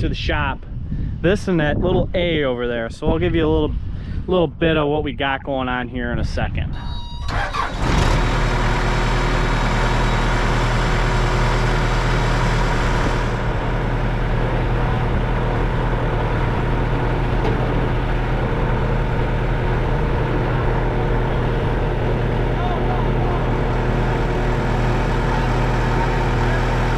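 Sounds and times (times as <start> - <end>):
engine idling: 7.3 - 26.9.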